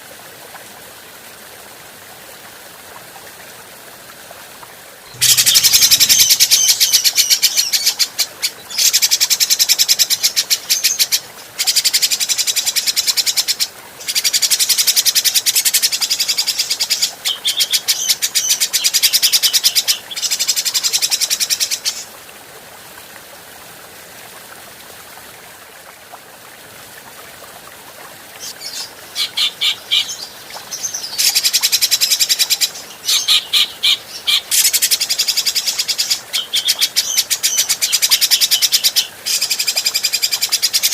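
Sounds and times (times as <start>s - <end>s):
faint hiss: 1.2s - 17.4s.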